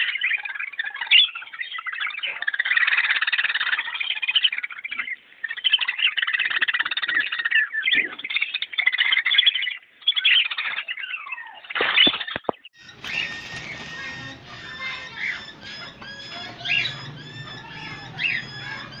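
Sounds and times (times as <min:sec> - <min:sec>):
falling whistled bird calls: 0:11.9 - 0:19.0
cockatiels chirping and chattering: 0:12.8 - 0:19.0.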